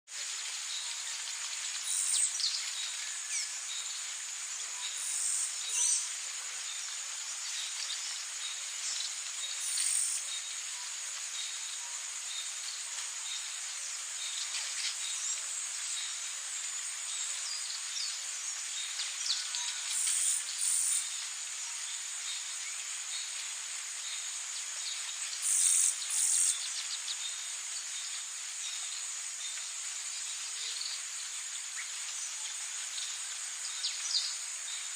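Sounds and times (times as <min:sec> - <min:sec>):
insect chorus: 0:00.1 - 0:34.9
loud insect chirps: 0:00.2 - 0:34.9.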